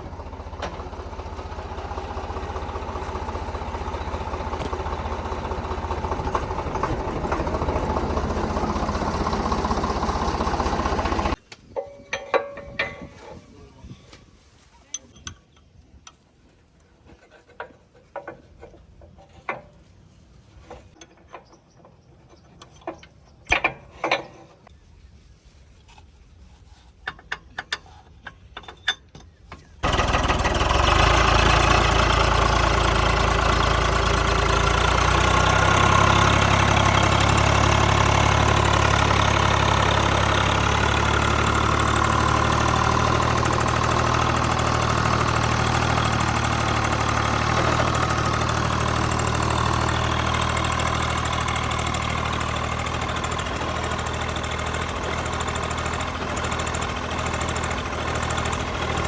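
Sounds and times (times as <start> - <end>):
tractor diesel engine running: 0.0 - 13.9, 29.4 - 59.0.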